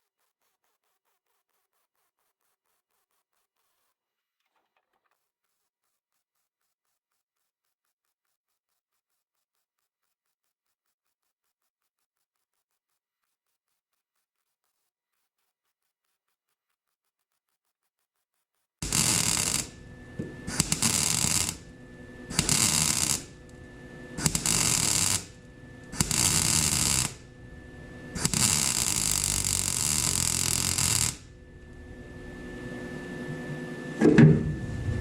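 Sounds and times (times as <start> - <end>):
welding arc crackling: 18.8 - 32.7
knock: 34.0 - 34.5.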